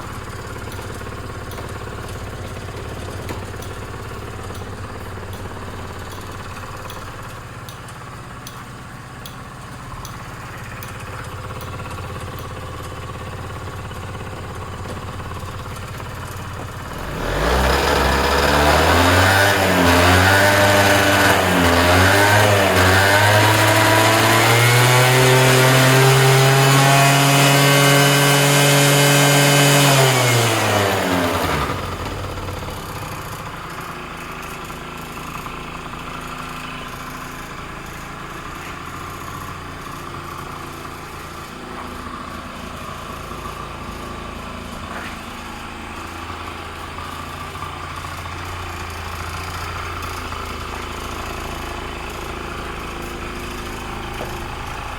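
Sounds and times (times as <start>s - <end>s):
scooter engine revving and idling: 0.0s - 54.9s.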